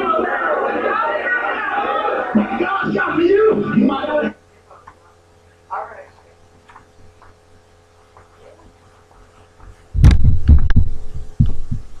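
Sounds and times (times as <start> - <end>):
loud low thumps and knocks: 10.0 - 11.9.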